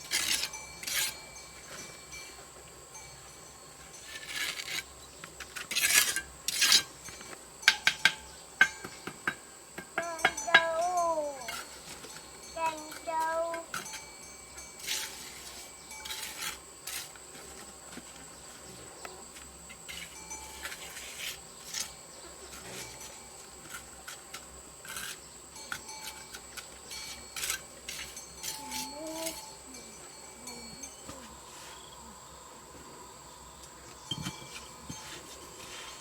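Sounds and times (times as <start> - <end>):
rasping scraping strokes: 0.0 - 1.8, 5.6 - 6.9, 14.7 - 17.7, 19.9 - 29.7, 34.2 - 36.0
high insect drone: 0.0 - 36.0.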